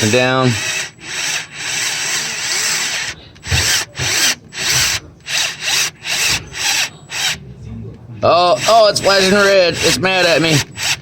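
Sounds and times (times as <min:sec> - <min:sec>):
cordless drill drilling: 0:00.0 - 0:07.4, 0:08.5 - 0:11.0.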